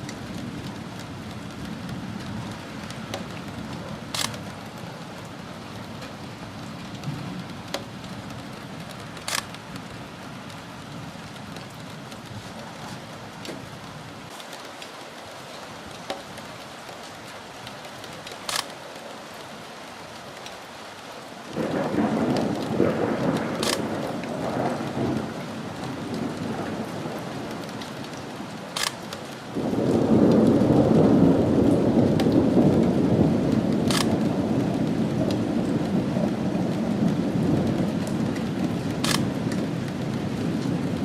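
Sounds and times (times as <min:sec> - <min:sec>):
steady rain: 0:00.0 - 0:41.0
thunder rumbling: 0:21.5 - 0:41.0.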